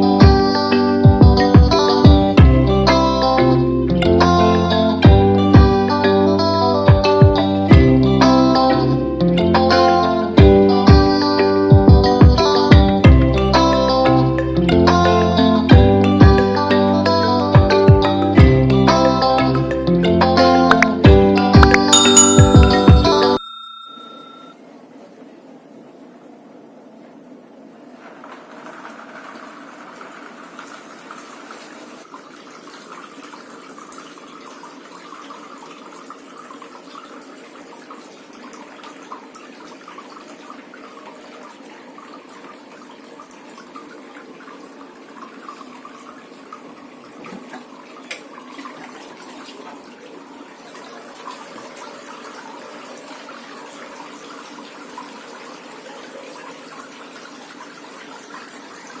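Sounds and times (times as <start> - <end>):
tabletop fountain water trickling: 28.0 - 59.0.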